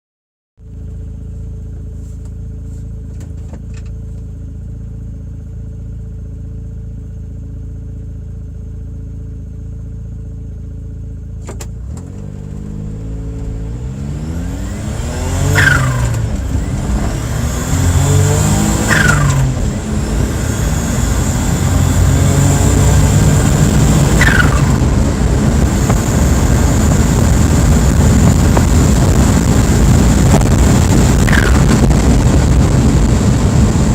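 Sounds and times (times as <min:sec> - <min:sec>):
road and wind noise: 0:00.6 - 0:33.9
gear shift falling sound: 0:01.9 - 0:04.4, 0:11.3 - 0:14.0
truck engine revving: 0:11.8 - 0:33.9.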